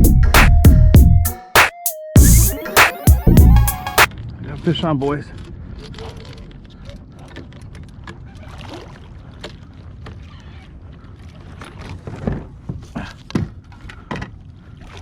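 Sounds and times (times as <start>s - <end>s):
wind and water on boat: 5.1s - 15.0s.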